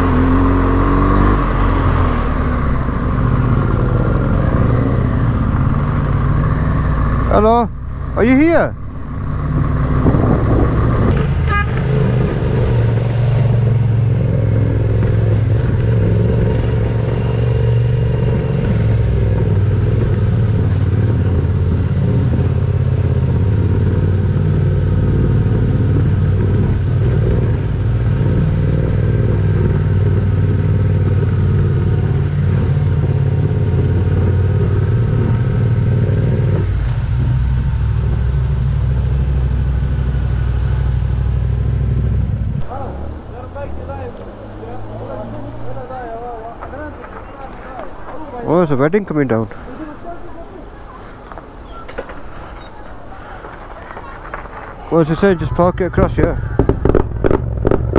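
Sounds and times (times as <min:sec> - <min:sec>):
motorcycle engine running: 0:00.0 - 0:47.2
road and wind noise: 0:00.0 - 0:57.9.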